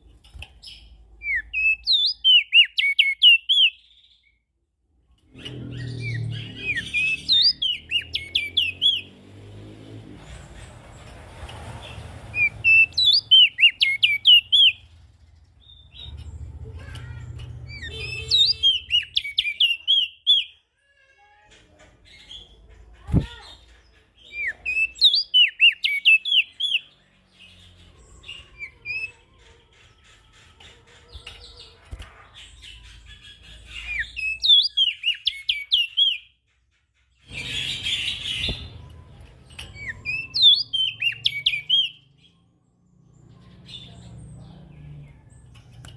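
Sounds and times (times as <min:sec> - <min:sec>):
songbird chirping: 0:00.0 - 0:45.9.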